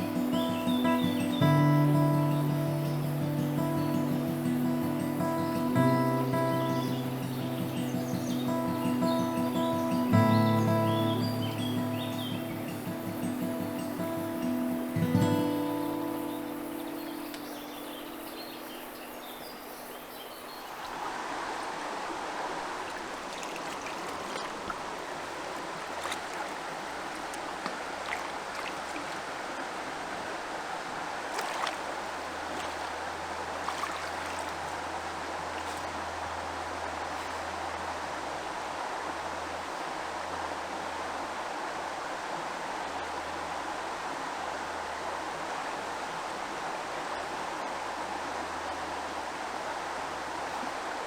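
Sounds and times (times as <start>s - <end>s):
river water rushing over stones: 0.0s - 51.0s
faint ticks: 16.1s - 19.0s.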